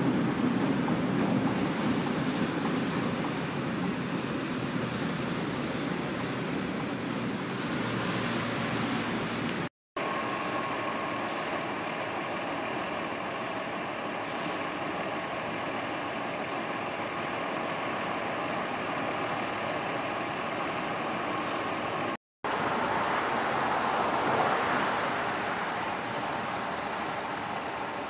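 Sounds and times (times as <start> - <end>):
engine idling: 9.2 - 22.2.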